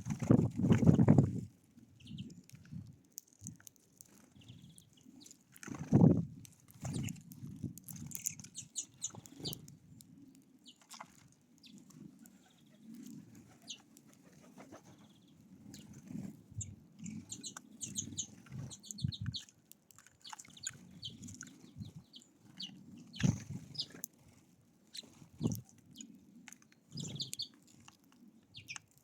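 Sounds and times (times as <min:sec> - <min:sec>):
songbirds chirping: 0:02.0 - 0:02.5, 0:04.0 - 0:05.5, 0:08.1 - 0:24.1, 0:24.8 - 0:29.0
wing flutters: 0:12.2 - 0:15.1.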